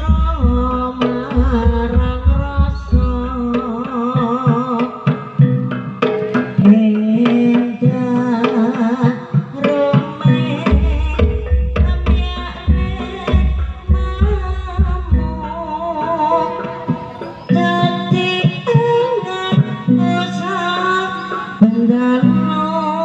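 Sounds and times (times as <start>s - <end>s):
deep bass drum beating: 0.0s - 3.5s, 10.8s - 15.6s
hand drum strokes: 0.0s - 22.7s
wavering melody line: 11.4s - 18.8s.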